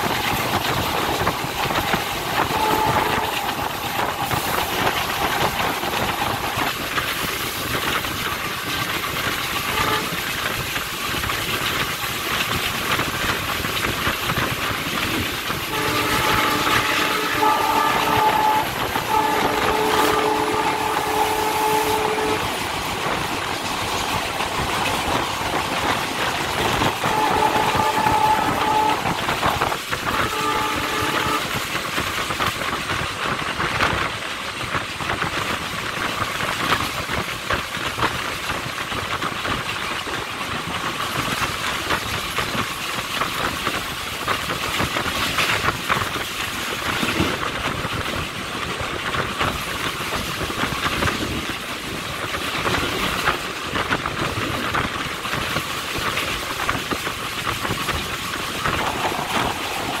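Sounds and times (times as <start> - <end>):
rush of air and track noise: 0.0 - 60.0
train wheels clattering over rails: 0.0 - 60.0
train horn: 1.0 - 6.8, 9.6 - 10.4, 15.7 - 23.2, 26.6 - 32.0.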